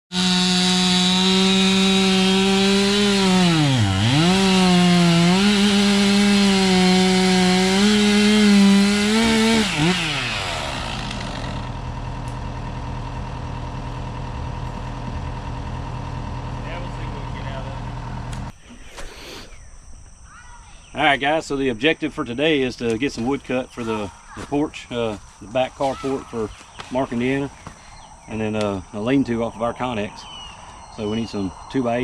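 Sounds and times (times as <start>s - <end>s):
saw cutting through log: 0.1s - 18.5s
sawmill engine running: 0.1s - 18.5s.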